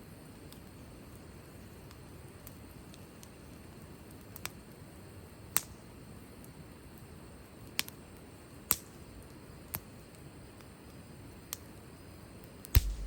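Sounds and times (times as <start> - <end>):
wood fire crackling: 0.1 - 13.0.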